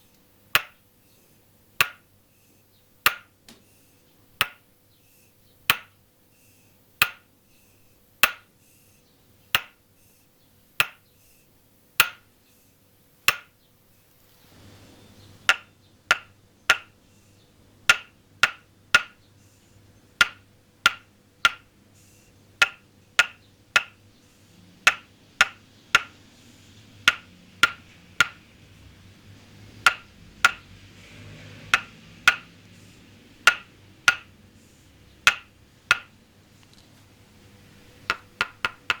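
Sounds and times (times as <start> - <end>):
faint background hiss: 0.0 - 39.0
wooden mallet tapping wooden peg: 0.5 - 0.9, 1.8 - 2.1, 3.0 - 3.6, 4.3 - 4.7, 5.6 - 6.0, 7.0 - 7.3, 8.2 - 8.6, 9.5 - 9.8, 10.7 - 11.1, 12.0 - 12.3, 13.2 - 13.6, 15.4 - 17.0, 17.8 - 19.2, 20.1 - 21.7, 22.6 - 24.1, 24.8 - 26.2, 27.0 - 28.6, 29.7 - 36.2, 38.0 - 39.0.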